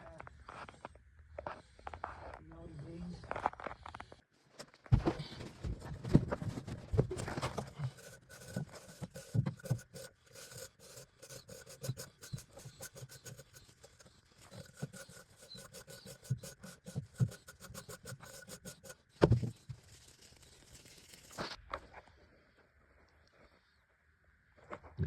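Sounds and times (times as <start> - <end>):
brush scraping metal heat exchanger: 6.1 - 21.6.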